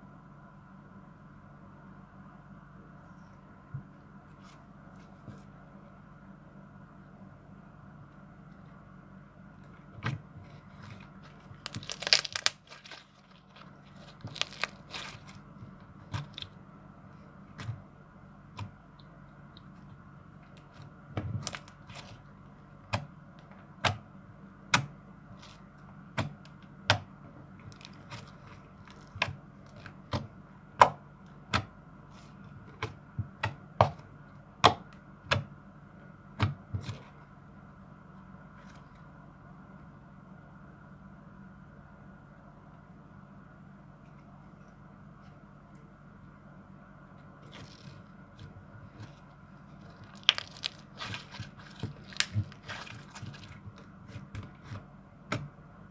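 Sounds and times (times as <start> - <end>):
slime popping and crackling: 11.3 - 15.4, 49.7 - 53.8.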